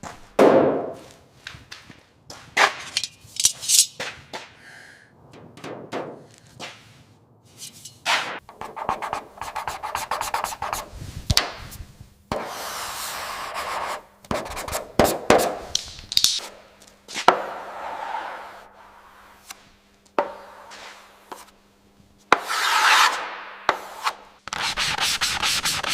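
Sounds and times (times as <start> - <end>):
sharp knocks: 5.4 - 6.3
steady sanding: 23.8 - 25.9.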